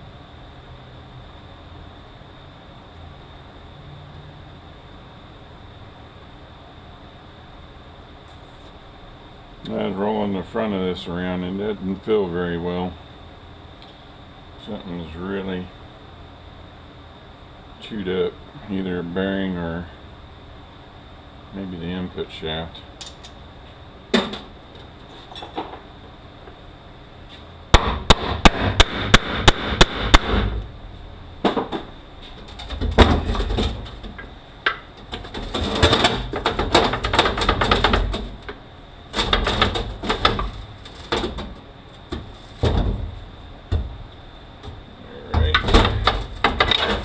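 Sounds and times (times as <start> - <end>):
steel gearbox parts clanking: 45.4 - 47.0.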